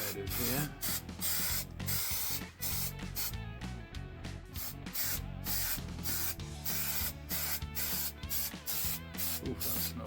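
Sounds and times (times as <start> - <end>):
aerosol can hissing: 0.0 - 3.4, 4.5 - 10.0
background music: 0.0 - 10.0.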